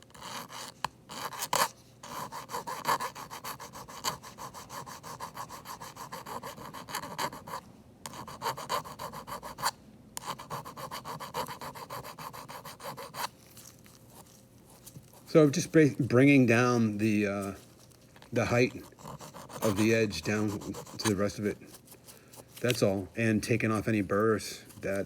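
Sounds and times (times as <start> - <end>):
metal file rasping on aluminium: 0.1 - 13.3, 18.5 - 21.5.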